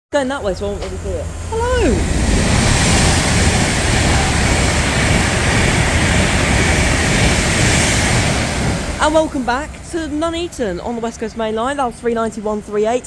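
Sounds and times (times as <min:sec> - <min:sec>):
electric train passing at speed: 0:00.2 - 0:13.0.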